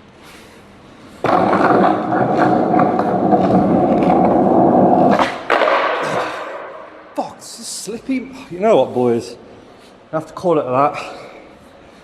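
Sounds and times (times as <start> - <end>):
skateboard wheels rolling: 1.2 - 7.0.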